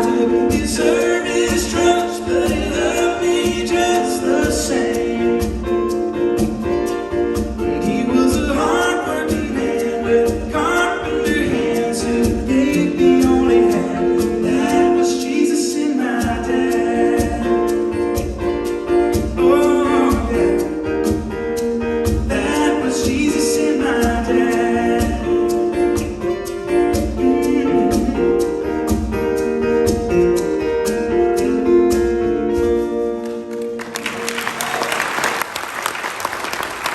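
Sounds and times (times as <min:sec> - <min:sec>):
live band playing gospel music: 0:00.0 - 0:36.9
audience applauding: 0:33.5 - 0:36.9.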